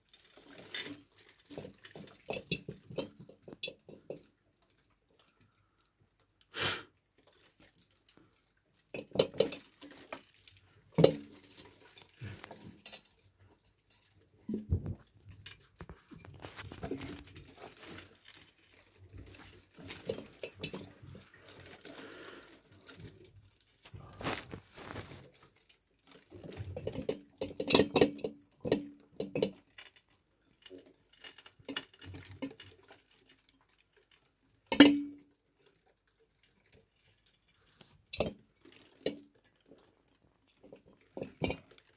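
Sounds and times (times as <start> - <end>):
cat scuffling and pattering: 24.2 - 25.4.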